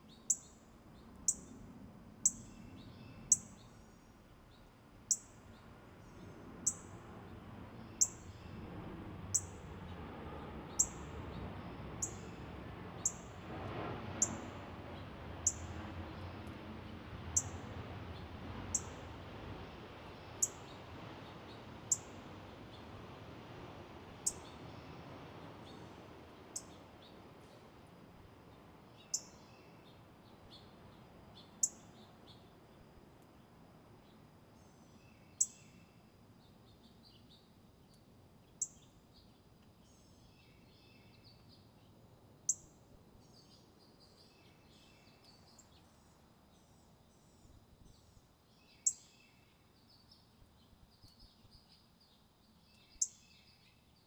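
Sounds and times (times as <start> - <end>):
soft bird twittering: 47.9 - 50.2, 52.5 - 53.8.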